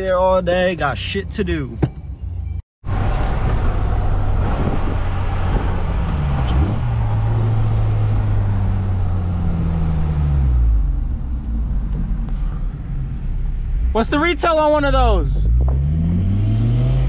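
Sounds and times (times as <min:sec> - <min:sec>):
road rumble: 0:00.0 - 0:17.0
car engine pulling away: 0:02.9 - 0:14.4, 0:15.1 - 0:17.0.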